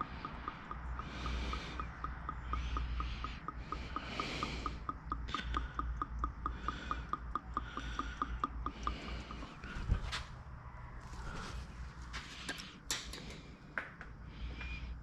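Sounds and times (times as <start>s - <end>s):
rapid mechanical clicking: 0.0s - 9.7s
low steady rumble: 0.0s - 12.8s.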